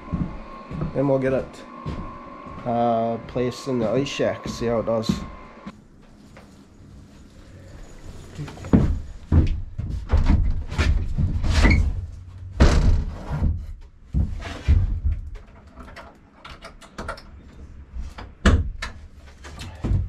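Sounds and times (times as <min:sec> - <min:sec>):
wood knocks and thumps: 0:08.6 - 0:11.8, 0:12.5 - 0:15.7.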